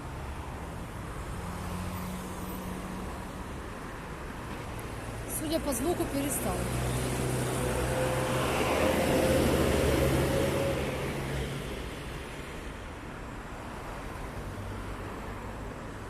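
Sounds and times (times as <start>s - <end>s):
steady street noise: 0.0s - 16.0s
vehicle passing by: 5.8s - 12.0s.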